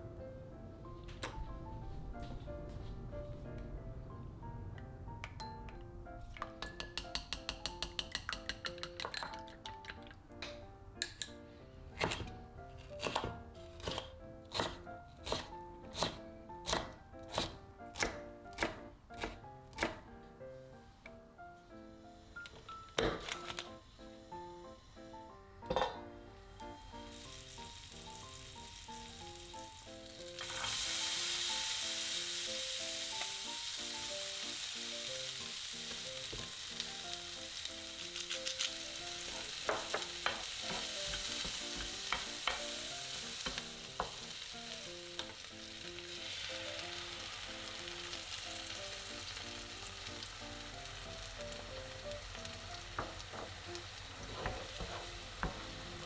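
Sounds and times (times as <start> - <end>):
soft piano music: 0.0 - 56.0
food sizzling in frying pan: 26.6 - 56.0.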